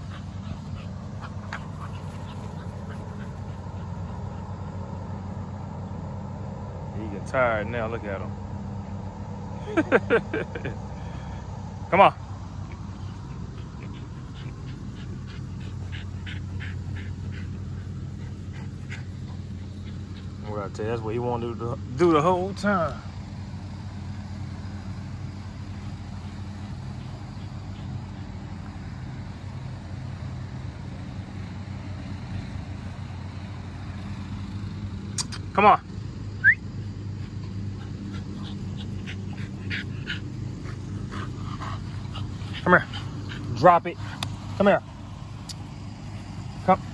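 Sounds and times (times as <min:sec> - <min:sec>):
puppy panting: 0:00.0 - 0:06.2, 0:12.2 - 0:21.0, 0:24.0 - 0:32.4, 0:36.2 - 0:46.9
low hum: 0:00.0 - 0:22.0
steady low hum: 0:00.0 - 0:46.9.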